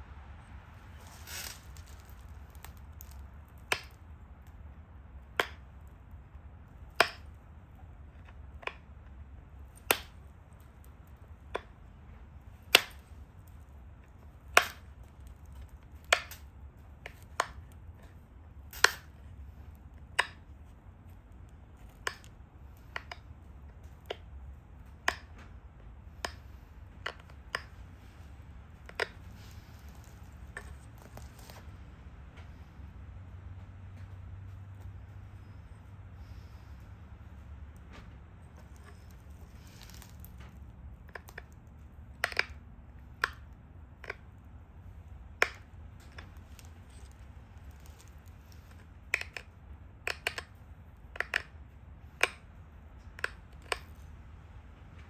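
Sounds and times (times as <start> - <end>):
stone flakes snapping clicks: 1.0 - 4.0, 5.4 - 5.7, 6.9 - 7.4, 9.8 - 10.6, 12.7 - 13.1, 18.8 - 19.1, 20.2 - 20.4, 21.9 - 23.2, 25.0 - 25.4, 28.8 - 31.6, 38.6 - 44.3, 45.4 - 51.6, 52.2 - 52.5, 53.1 - 54.0.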